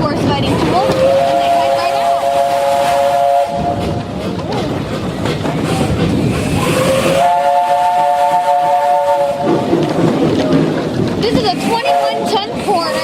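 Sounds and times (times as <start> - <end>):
train rumble and clatter: 0.0 - 13.0
steam locomotive whistle: 0.7 - 4.0, 6.4 - 9.7, 11.6 - 13.0.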